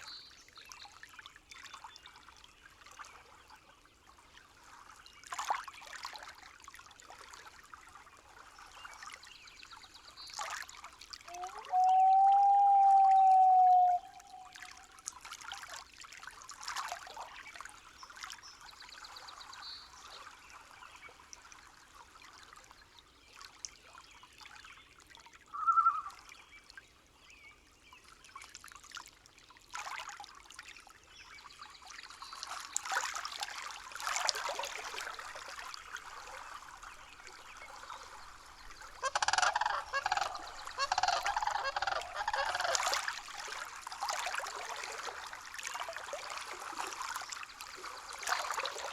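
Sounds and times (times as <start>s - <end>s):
faint water trickling: 0.0s - 48.9s
bird calls: 11.3s - 14.7s, 25.6s - 26.2s, 37.4s - 43.4s.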